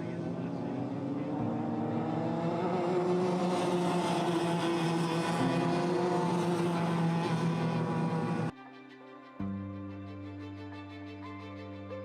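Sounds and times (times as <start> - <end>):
kart engines at high revs: 0.0 - 8.5.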